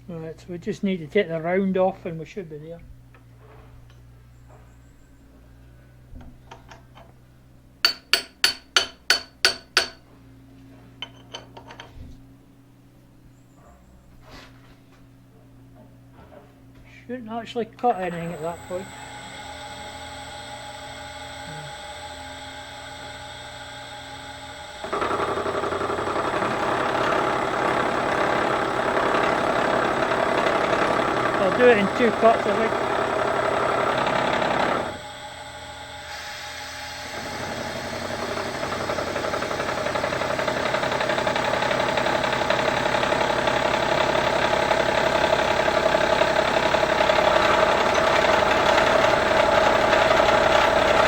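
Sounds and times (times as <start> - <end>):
ringing metal taps: 7.9 - 10.0
milling machine humming: 17.0 - 51.0
cutter grinding metal: 17.9 - 51.0.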